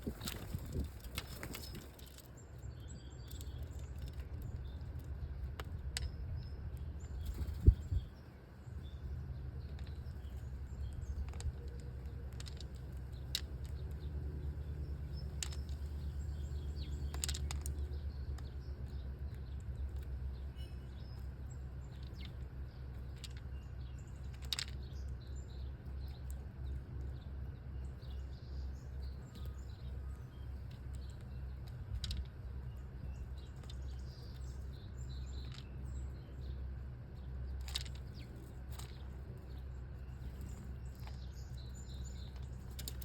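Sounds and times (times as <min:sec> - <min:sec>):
small birds chirping: 0:00.0 - 0:43.0
steady low rumble: 0:00.0 - 0:43.0.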